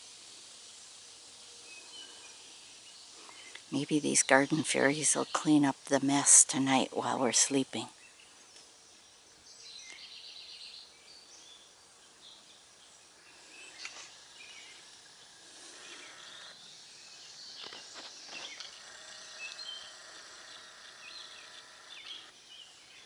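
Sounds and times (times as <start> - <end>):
bird chirps and trills: 13.2 - 23.0.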